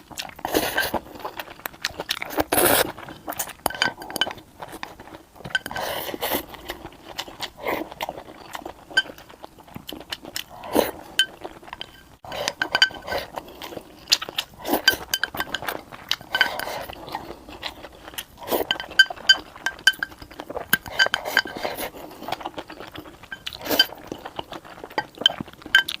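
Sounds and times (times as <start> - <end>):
chewing: 0.0 - 26.0
utensils clinking on ceramic dishes: 3.7 - 4.4, 11.2 - 13.3, 14.7 - 16.9, 18.6 - 21.8, 22.6 - 26.0.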